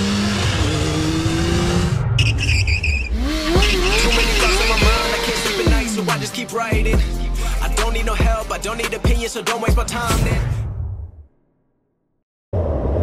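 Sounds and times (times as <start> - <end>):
vehicle engine accelerating: 0.0 - 6.6
wavering whining tone: 0.7 - 6.3.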